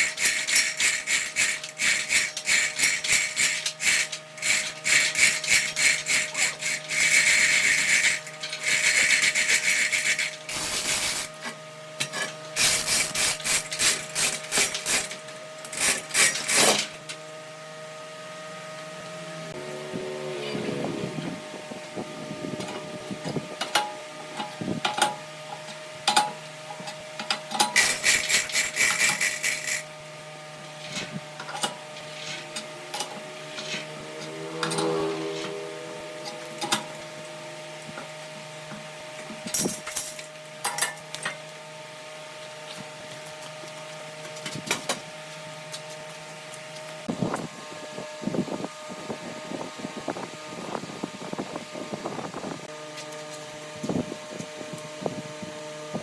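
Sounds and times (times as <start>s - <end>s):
rapid scraping strokes: 0.0s - 11.3s, 27.7s - 29.9s, 32.0s - 32.6s, 33.4s - 35.7s
electric machine hum: 0.0s - 56.0s.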